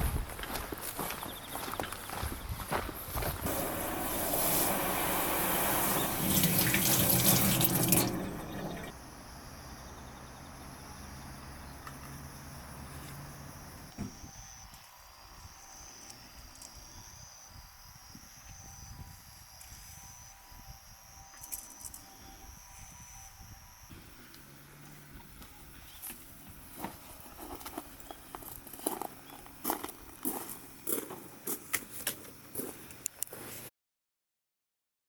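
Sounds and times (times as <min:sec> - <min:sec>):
tap water running: 0:03.4 - 0:08.9
faint hiss with high tones: 0:03.5 - 0:09.0.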